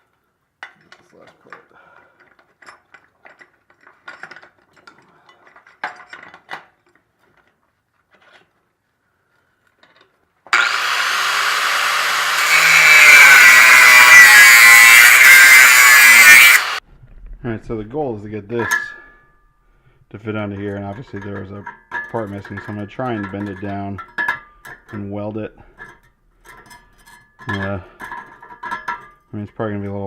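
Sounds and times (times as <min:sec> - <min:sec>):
power tool cutting metal pipe: 0:10.5 - 0:16.8.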